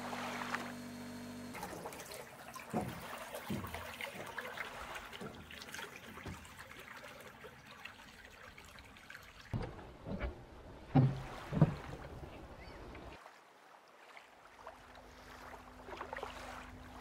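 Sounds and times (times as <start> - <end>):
water trickling and lapping: 0.0 - 17.0
low thumps: 9.6 - 12.3.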